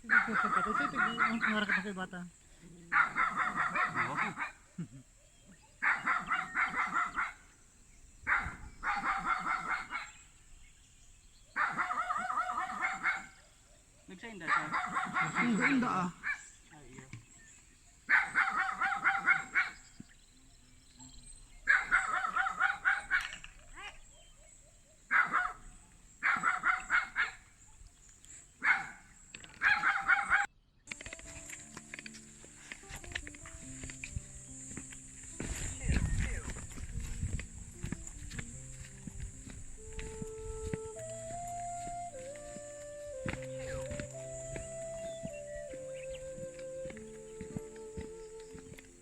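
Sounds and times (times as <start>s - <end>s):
dog barking: 0.0s - 2.0s, 2.9s - 4.6s, 5.8s - 7.4s, 8.3s - 10.2s, 11.6s - 13.4s, 14.4s - 16.5s, 18.1s - 19.8s, 21.6s - 24.0s, 25.1s - 27.4s, 28.6s - 29.0s, 29.6s - 30.5s.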